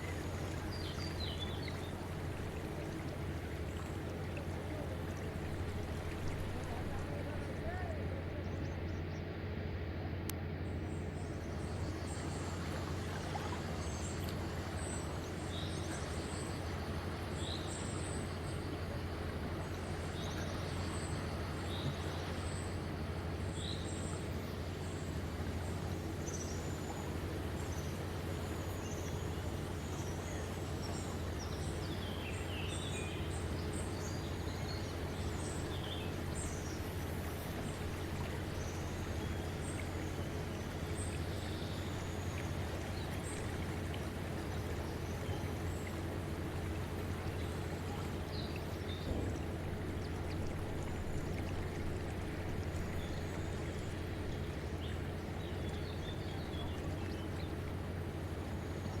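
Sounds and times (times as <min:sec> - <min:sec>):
birds chirping: 0:00.0 - 0:09.2, 0:23.4 - 0:58.9.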